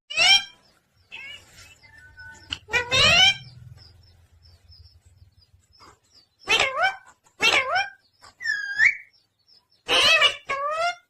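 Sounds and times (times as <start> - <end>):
parrot harsh calls: 0.1 - 1.5, 2.7 - 3.6, 6.4 - 9.1, 9.8 - 11.0.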